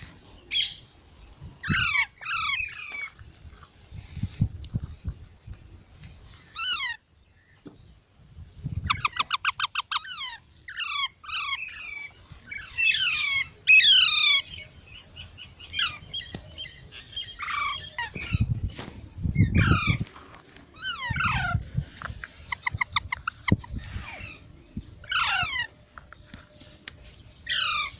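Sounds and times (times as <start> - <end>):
baby parrots squawking: 1.6 - 3.2, 6.6 - 7.0, 8.9 - 14.4, 17.4 - 18.2, 19.5 - 20.0, 20.8 - 21.6, 24.0 - 24.4, 25.1 - 25.7, 27.5 - 27.9.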